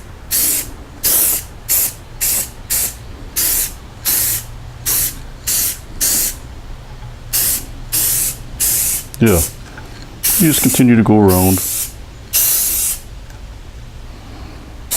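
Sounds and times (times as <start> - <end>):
spray-paint can hissing: 0.3 - 6.4, 7.3 - 9.6, 10.2 - 10.7, 11.6 - 13.1.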